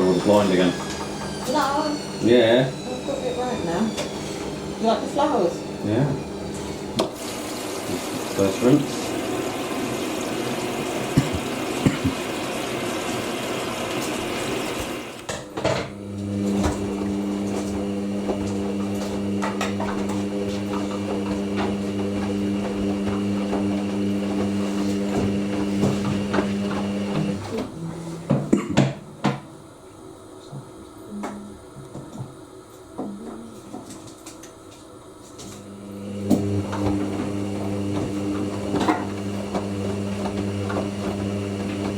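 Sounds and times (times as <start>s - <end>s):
water rushing into washing machine: 0.0s - 2.7s, 4.5s - 27.9s, 35.6s - 41.9s
washing machine humming: 0.0s - 41.9s.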